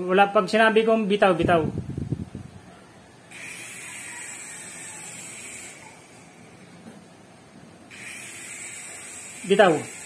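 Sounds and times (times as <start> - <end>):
toy helicopter motor whirring: 3.3 - 6.6, 7.9 - 10.0.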